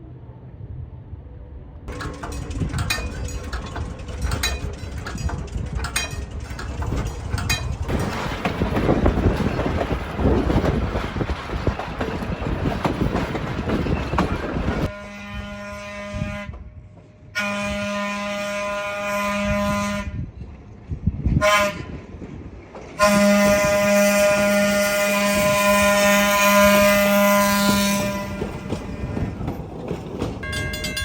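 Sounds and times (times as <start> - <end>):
train horn blasts: 14.9 - 20.3, 21.4 - 22.0, 23.0 - 28.7.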